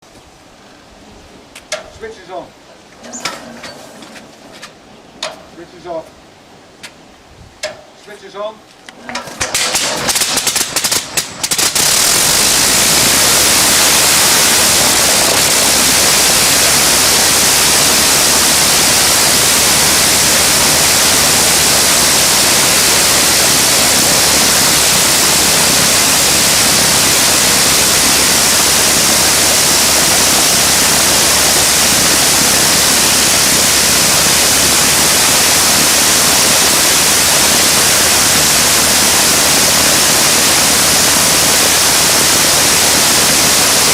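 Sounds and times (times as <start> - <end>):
rotary aero engine roaring: 8.9 - 43.9.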